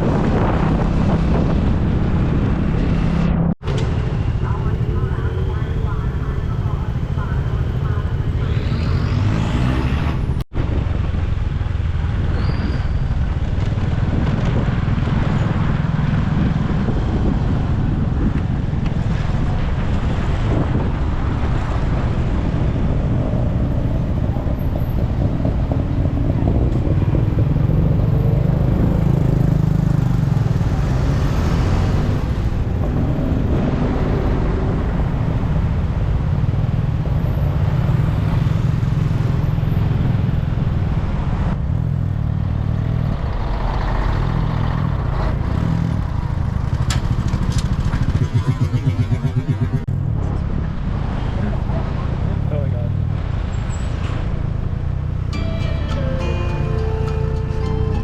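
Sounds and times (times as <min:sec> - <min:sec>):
road traffic: 0:00.0 - 0:58.0.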